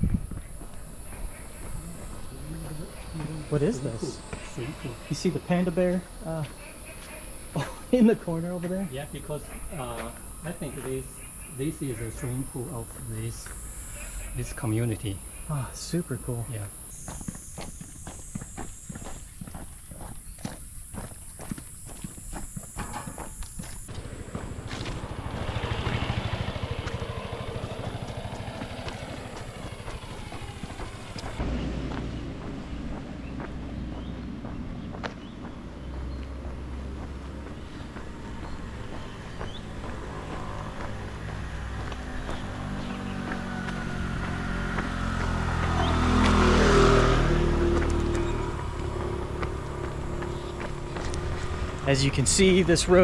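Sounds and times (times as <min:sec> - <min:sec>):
motorcycle passing: 0:00.0 - 0:53.0.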